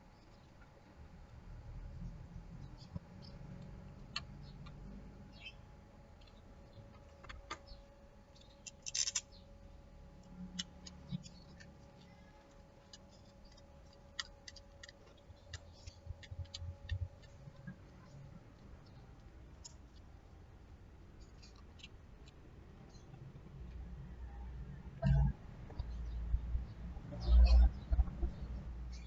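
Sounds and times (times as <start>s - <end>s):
faint steady hum: 0.0s - 29.0s
plastic parts clicking and scraping: 8.4s - 9.4s.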